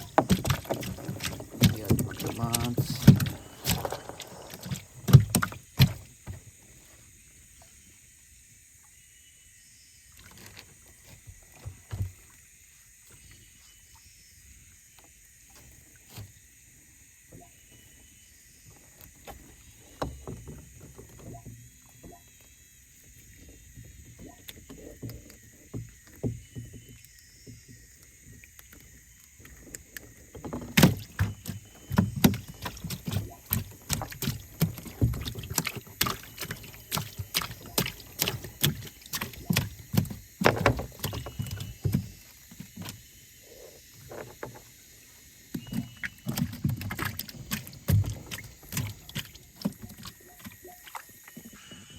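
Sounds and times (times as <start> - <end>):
knocking in wooden boat: 0.0 - 5.9, 30.4 - 42.8.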